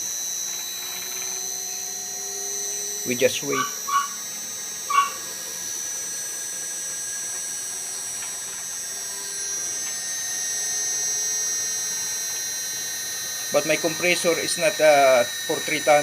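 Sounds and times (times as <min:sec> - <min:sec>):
air conditioner humming and whining: 0:00.0 - 0:16.0.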